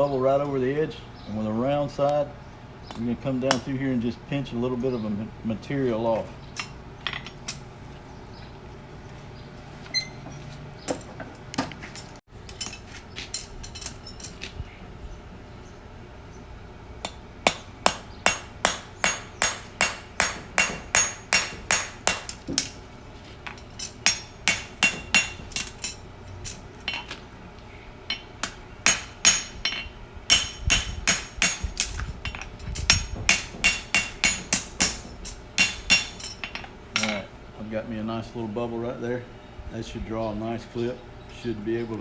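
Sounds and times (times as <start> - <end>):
hammer striking horseshoe on anvil: 17.0 - 22.8, 23.5 - 27.2, 28.1 - 37.2.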